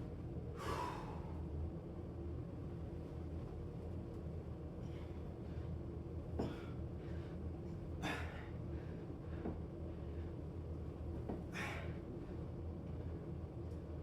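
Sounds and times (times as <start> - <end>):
low background hum: 0.0 - 14.0
person breathing hard: 0.6 - 1.4.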